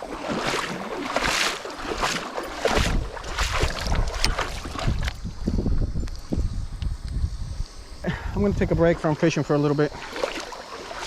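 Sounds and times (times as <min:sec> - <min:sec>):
water sloshing and splashing: 0:00.0 - 0:05.4, 0:08.6 - 0:11.0
wind rumbling on microphone: 0:00.0 - 0:11.0.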